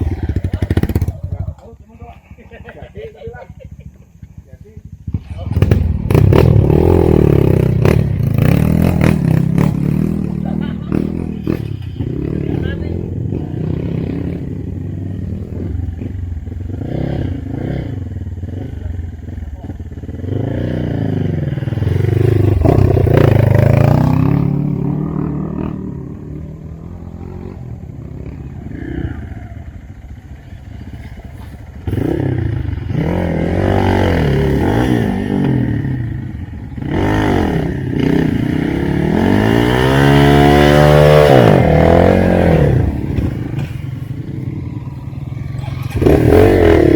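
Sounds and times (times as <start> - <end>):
dirt bike engine revving: 5.0 - 46.9
bike rattling: 34.0 - 46.9.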